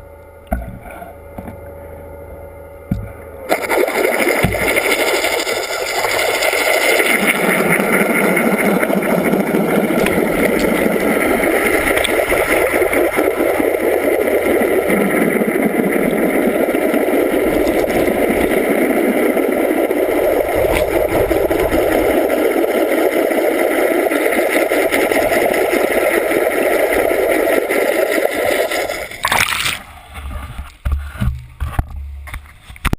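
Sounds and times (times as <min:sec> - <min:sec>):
boat motor running: 0:00.0 - 0:29.3
rushing water: 0:03.5 - 0:29.8.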